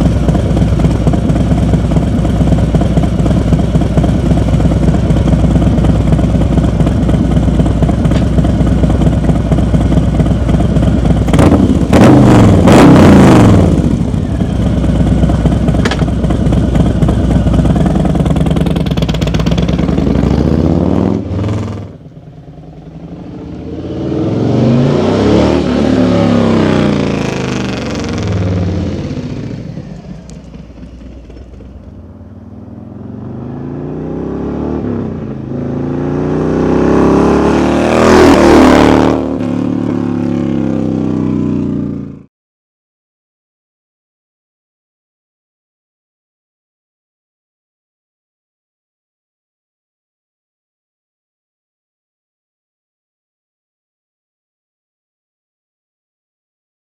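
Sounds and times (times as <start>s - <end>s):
motorcycle engine revving: 0.0s - 42.3s.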